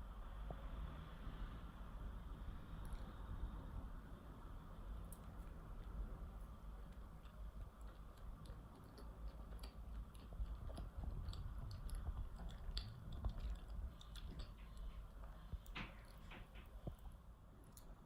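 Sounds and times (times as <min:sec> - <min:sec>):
chewing mouth sounds: 0:06.8 - 0:17.1.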